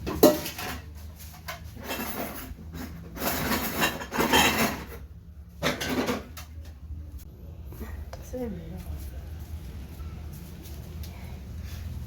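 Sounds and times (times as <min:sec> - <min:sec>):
clay pot lid scraping and clattering: 0:00.0 - 0:06.4.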